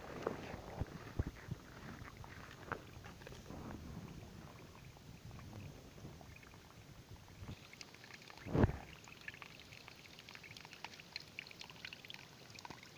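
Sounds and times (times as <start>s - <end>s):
water trickling and splashing: 0.0s - 12.9s
loud thump: 8.5s - 8.8s.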